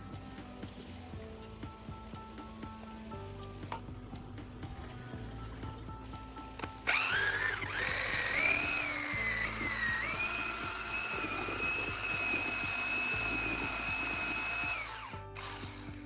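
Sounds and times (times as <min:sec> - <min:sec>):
power tool motor whining: 0:06.9 - 0:16.0.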